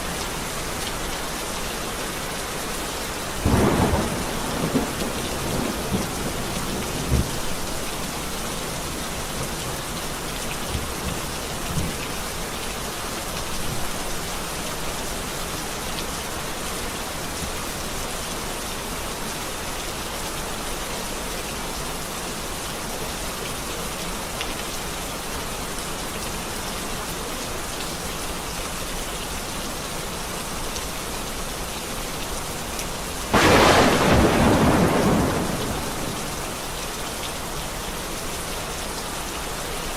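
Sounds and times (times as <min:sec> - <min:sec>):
steady rain: 0:00.0 - 0:39.9
thunder rumbling: 0:03.4 - 0:07.6, 0:33.3 - 0:36.7
loud thunder clap: 0:33.3 - 0:36.6.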